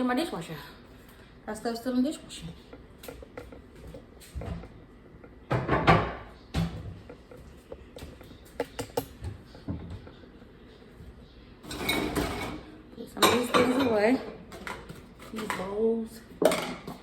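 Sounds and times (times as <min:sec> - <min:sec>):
dishes knocking and clicking: 0:03.0 - 0:10.2, 0:16.4 - 0:17.0
dishes rattling clatter: 0:05.4 - 0:10.2, 0:11.6 - 0:15.8, 0:16.4 - 0:17.0.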